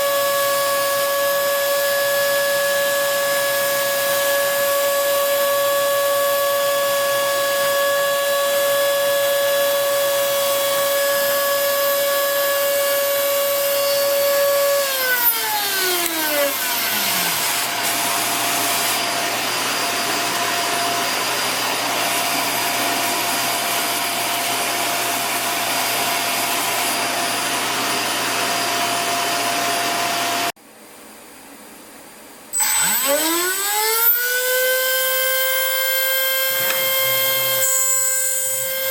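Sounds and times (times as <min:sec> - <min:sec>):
spindle motor whining: 0:04.0 - 0:19.1, 0:32.6 - 0:38.9
motor spinning up: 0:14.7 - 0:19.1, 0:32.6 - 0:38.9.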